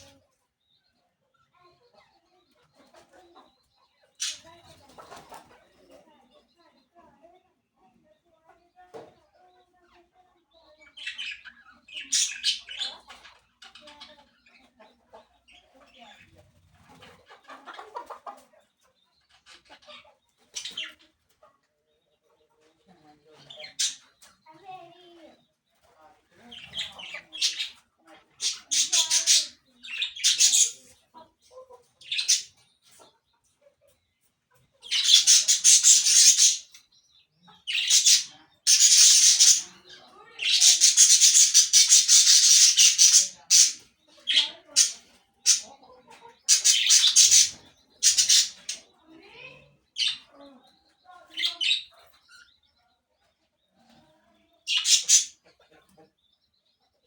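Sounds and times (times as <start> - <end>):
parakeets screeching: 11.0 - 13.9, 26.5 - 27.8, 28.4 - 30.9, 32.0 - 32.5, 34.8 - 36.8, 37.7 - 45.8, 46.4 - 50.3, 51.3 - 52.5, 54.7 - 55.4.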